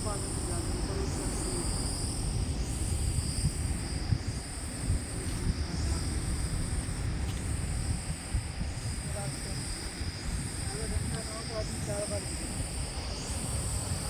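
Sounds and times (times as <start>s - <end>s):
insects chirring: 0.0s - 14.0s
wind buffeting microphone: 0.0s - 14.0s.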